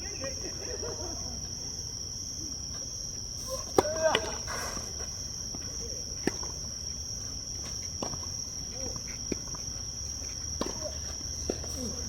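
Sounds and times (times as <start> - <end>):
insects chirring: 0.0 - 12.0
tennis ball struck by racquets: 3.7 - 4.4.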